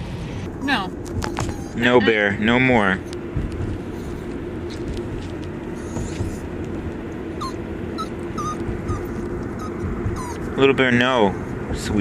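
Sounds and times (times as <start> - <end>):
car cabin road drone: 0.0 - 12.0
dog whimpering: 1.2 - 2.4, 5.7 - 6.5, 7.4 - 11.7.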